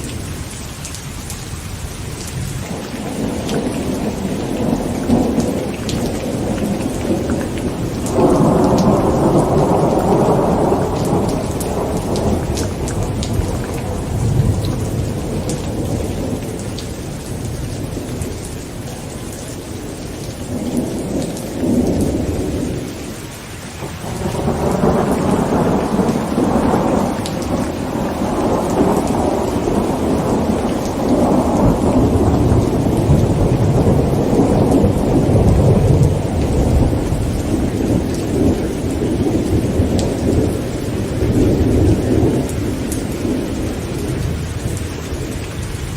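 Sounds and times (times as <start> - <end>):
heavy rain on a tent: 0.0 - 45.9
raindrop ticks: 2.2 - 22.6
rolling thunder: 2.3 - 22.9, 23.8 - 45.9.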